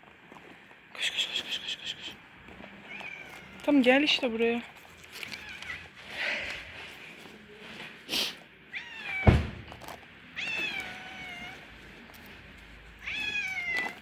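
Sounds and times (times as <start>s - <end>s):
cat meowing: 2.8s - 3.7s, 5.2s - 5.9s, 8.7s - 9.5s, 10.4s - 11.6s, 13.0s - 14.0s
loud thump: 9.2s - 10.0s.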